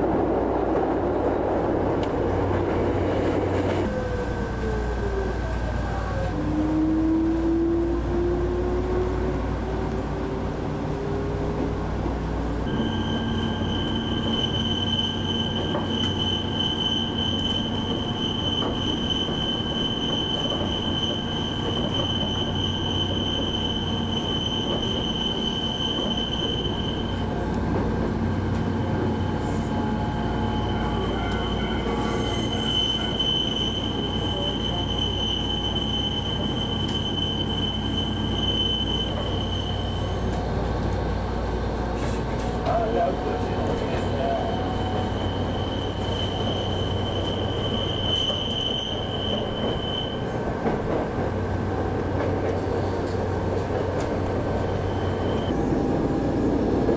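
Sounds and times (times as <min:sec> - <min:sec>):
train wheels rumbling: 0:00.0 - 0:56.9
high wheel squeal: 0:12.7 - 0:27.4, 0:29.0 - 0:40.4, 0:42.1 - 0:50.4, 0:54.4 - 0:55.6.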